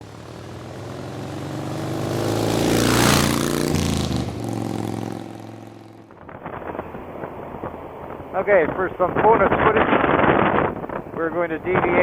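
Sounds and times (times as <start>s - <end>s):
motorcycle engine running: 0.0s - 9.0s
rush of noise: 0.8s - 12.0s.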